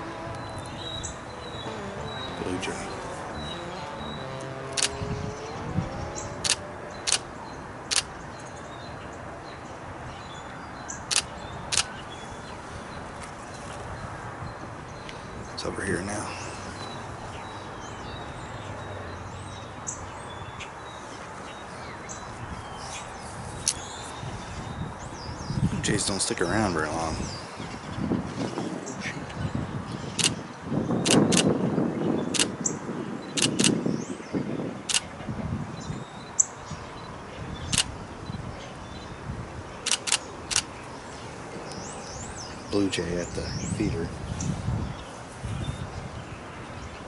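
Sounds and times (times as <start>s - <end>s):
songbirds chirping: 0.0s - 47.0s
steady outdoor hum: 0.0s - 47.0s
sharp click: 6.4s - 7.2s, 31.1s - 31.5s, 33.4s - 33.8s, 39.9s - 40.7s.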